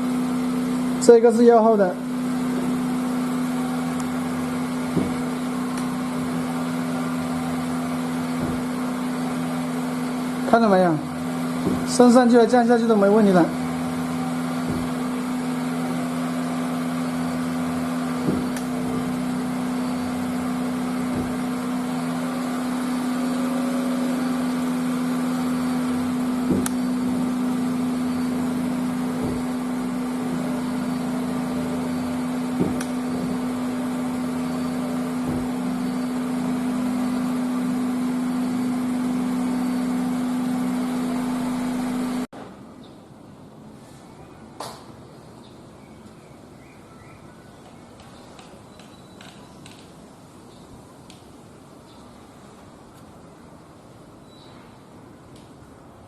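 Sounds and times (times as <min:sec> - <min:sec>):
car engine idling: 0:00.0 - 0:42.3.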